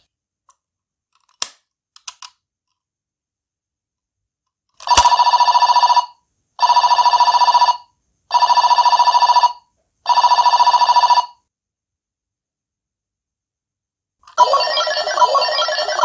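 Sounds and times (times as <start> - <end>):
electronic trilling phone rings: 4.9 - 11.4, 14.4 - 16.0.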